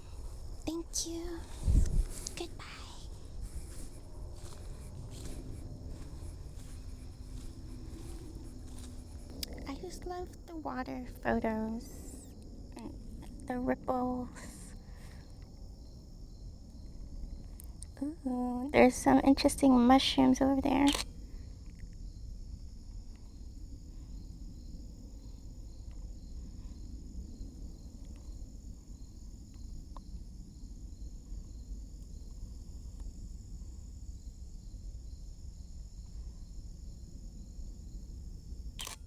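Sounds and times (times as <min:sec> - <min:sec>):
insects calling: 0:00.0 - 0:39.0
low outdoor rumble: 0:00.0 - 0:39.0
faint clicks: 0:20.8 - 0:22.0, 0:38.8 - 0:39.0.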